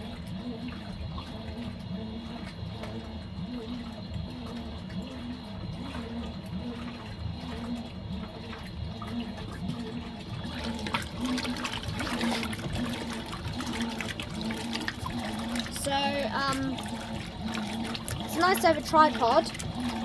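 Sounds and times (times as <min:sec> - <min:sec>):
washing machine hum: 0:00.0 - 0:20.0
water rushing and splashing: 0:10.5 - 0:20.0.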